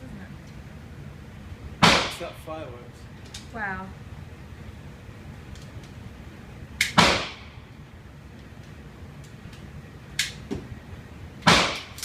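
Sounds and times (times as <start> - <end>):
gunshots with echo: 1.8 - 2.2, 7.0 - 7.5.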